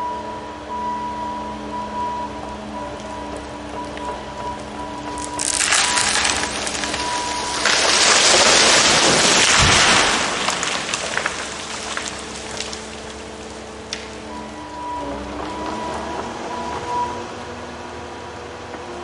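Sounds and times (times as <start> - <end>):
crash of branches and leaves: 5.1 - 14.1
heavy thud of falling tree: 7.4 - 12.8.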